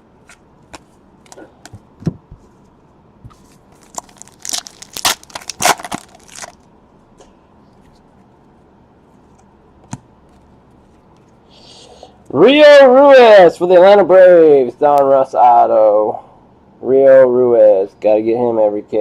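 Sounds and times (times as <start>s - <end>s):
cards and packaging clicking: 3.8s - 6.6s
foil wrapper crinkling and tearing: 3.8s - 6.6s.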